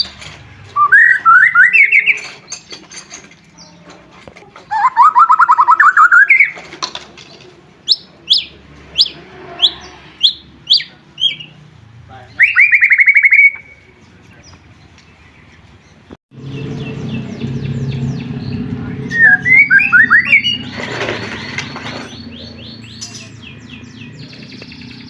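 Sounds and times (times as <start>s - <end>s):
songbird trilling and whistling: 0.8s - 2.8s, 4.7s - 6.6s, 7.9s - 11.6s, 12.4s - 14.0s, 16.5s - 25.0s.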